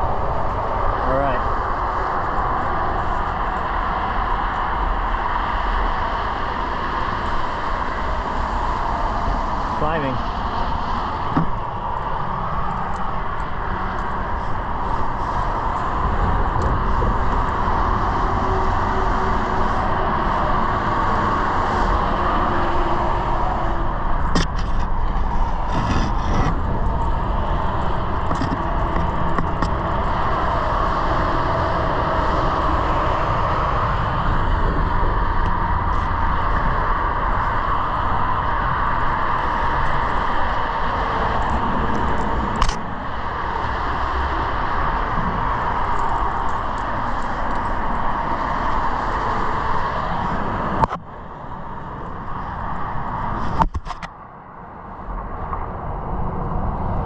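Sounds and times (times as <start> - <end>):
highway traffic drone: 0.0 - 57.0.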